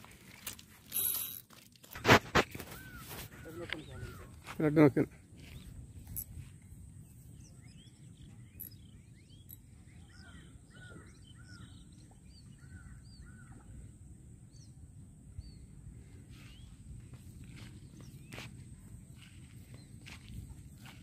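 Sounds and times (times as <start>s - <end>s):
low wind rumble: 2.8s - 21.0s
faint bird chirps: 5.4s - 14.8s, 15.4s - 21.0s.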